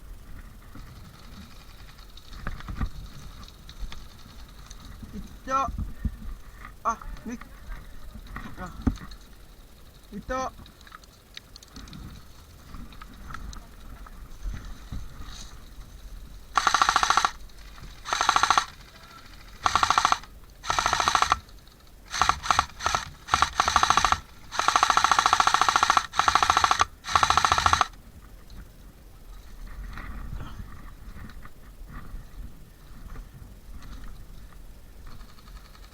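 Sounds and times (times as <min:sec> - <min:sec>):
airsoft gun firing bursts: 0:16.5 - 0:28.0.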